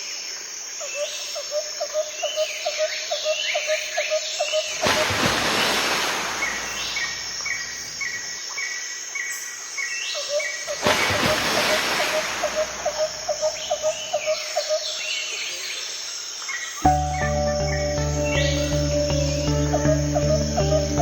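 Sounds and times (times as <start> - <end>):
birds calling: 10.2 - 14.8
bird chirping: 12.3 - 15.7, 16.6 - 21.0
evenly spaced higher chirps: 16.8 - 21.0.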